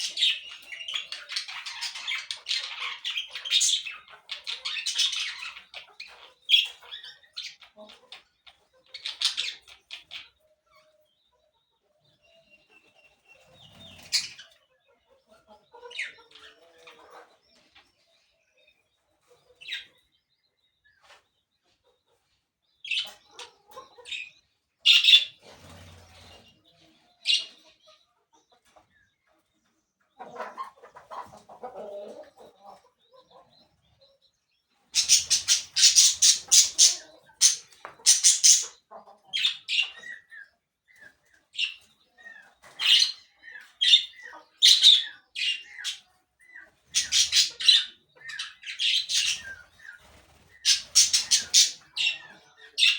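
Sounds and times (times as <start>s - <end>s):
parakeets chirping and squawking: 0.0s - 10.4s, 13.7s - 14.6s, 15.8s - 17.3s, 19.6s - 19.9s, 22.8s - 26.5s, 27.2s - 28.0s, 34.9s - 40.4s, 41.5s - 52.9s.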